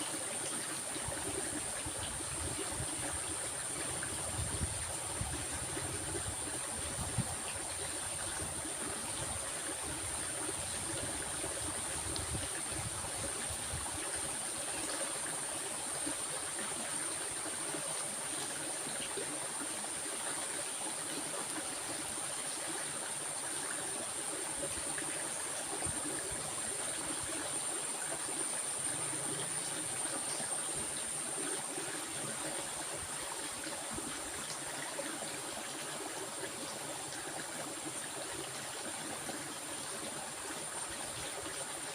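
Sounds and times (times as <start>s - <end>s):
stream water rushing: 0.0s - 41.9s.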